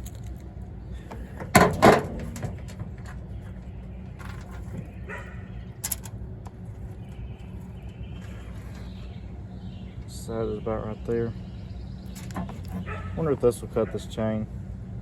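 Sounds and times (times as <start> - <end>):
small metal parts rattling: 0.0 - 0.5, 5.8 - 6.2
animal barking calls: 5.0 - 5.6, 12.7 - 14.1.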